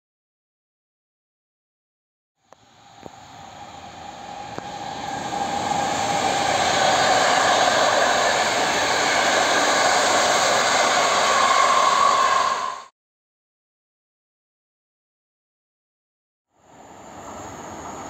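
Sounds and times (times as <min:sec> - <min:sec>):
locomotive hum: 0:02.5 - 0:12.9, 0:16.6 - 0:18.0
train wheels rushing on rails: 0:02.6 - 0:12.9, 0:16.7 - 0:18.0.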